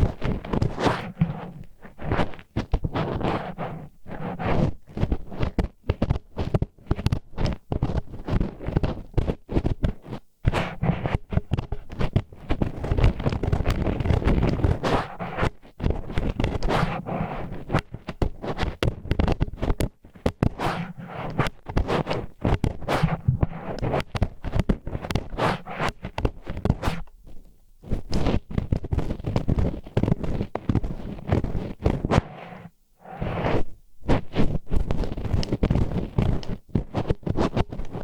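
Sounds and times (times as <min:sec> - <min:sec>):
wooden chopsticks scraping: 0:16.6 - 0:17.8, 0:20.5 - 0:26.0, 0:31.9 - 0:34.4.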